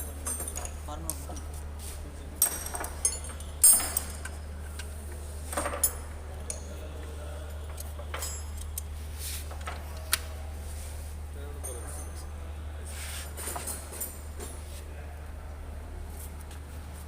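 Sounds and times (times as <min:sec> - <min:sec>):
metal tools and parts clinking: 0:00.0 - 0:01.6, 0:02.4 - 0:04.5, 0:05.5 - 0:06.7, 0:07.7 - 0:08.9.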